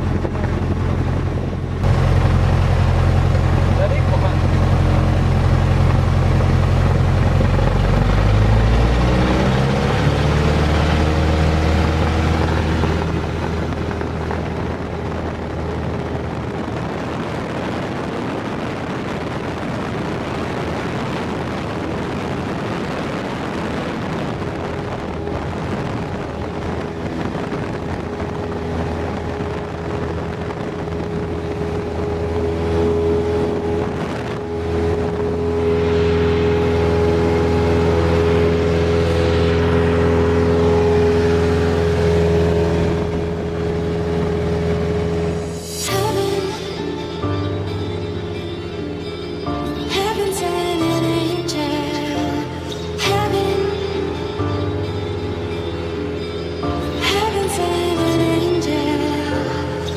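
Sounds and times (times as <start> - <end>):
airplane engine drone: 0.0 - 59.9
steady hum: 0.0 - 59.9.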